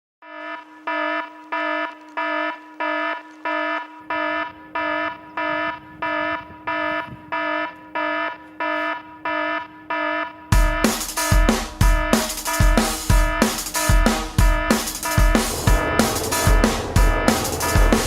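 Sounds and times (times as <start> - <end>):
electronic alarm beeping: 0.2 - 18.0
steady low tone: 15.0 - 18.0.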